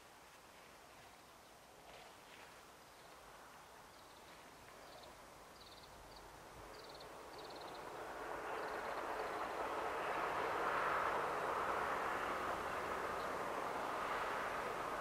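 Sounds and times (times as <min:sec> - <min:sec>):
diesel train approaching: 0:06.2 - 0:15.0.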